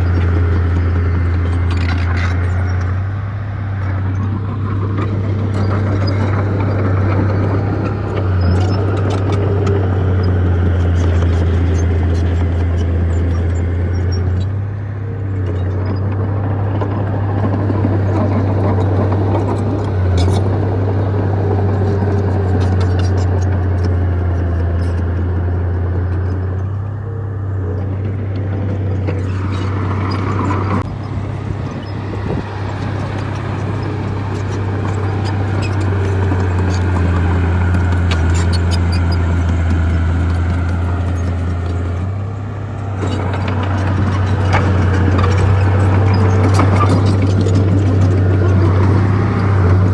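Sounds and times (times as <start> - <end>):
bulldozer diesel engine droning: 0.0 - 49.9.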